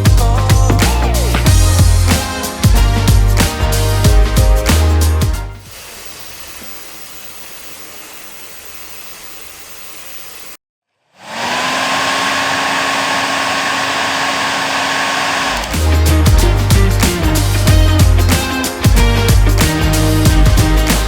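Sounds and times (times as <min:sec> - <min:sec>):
music: 0:00.0 - 0:05.6, 0:15.7 - 0:21.0
hair dryer blowing hiss: 0:05.6 - 0:08.0, 0:11.2 - 0:16.3
loud hair dryer whine: 0:11.2 - 0:16.2.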